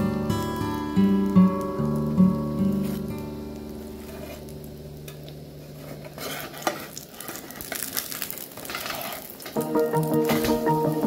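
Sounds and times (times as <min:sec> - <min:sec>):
omelette sizzling in pan: 0:00.0 - 0:11.0
spatula scraping and tapping pan: 0:04.0 - 0:04.5, 0:05.1 - 0:07.4.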